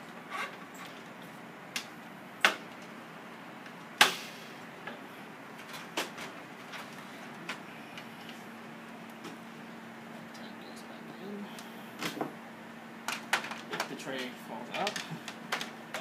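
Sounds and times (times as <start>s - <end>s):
computer case parts clicking and knocking: 13.1s - 16.0s.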